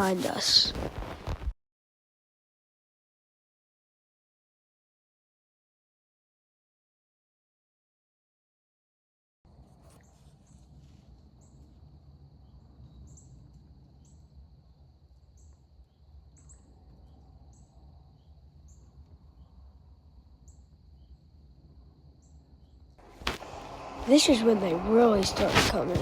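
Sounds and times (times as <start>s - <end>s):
low rumble: 23.0s - 26.0s
thin high whine: 23.0s - 26.0s.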